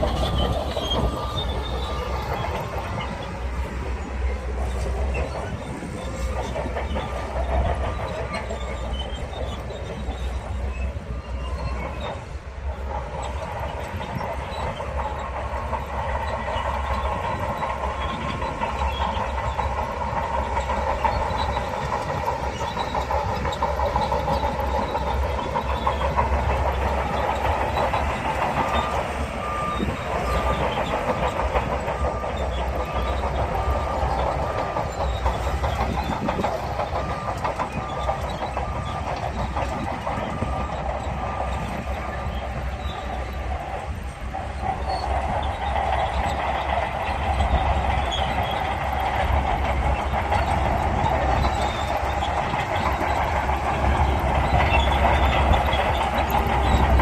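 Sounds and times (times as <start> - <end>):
bulldozer diesel engine under load: 0.0 - 57.0
steel tracks clanking: 0.0 - 57.0
reversing beeper: 24.3 - 43.2.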